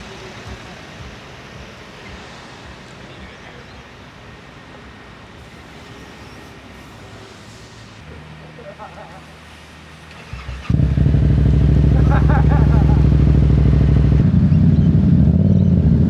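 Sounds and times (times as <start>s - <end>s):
low buffeting thumps: 10.7s - 16.0s.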